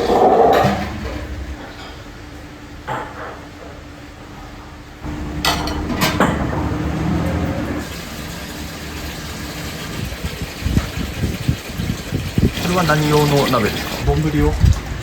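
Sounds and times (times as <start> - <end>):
pots and pans clinking: 5.4 - 6.8
water running into metal pot: 5.4 - 15.0.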